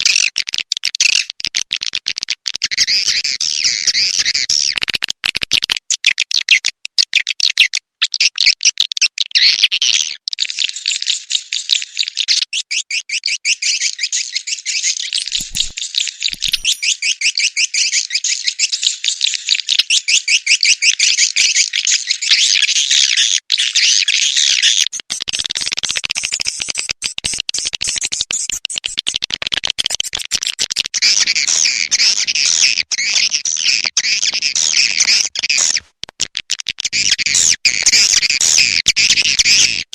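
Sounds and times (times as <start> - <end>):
swiftlets chirping: 15.2 - 17.0.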